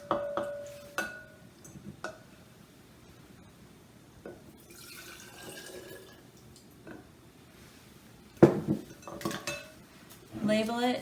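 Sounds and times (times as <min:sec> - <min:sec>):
liquid pouring into glass jar: 0:04.7 - 0:06.2.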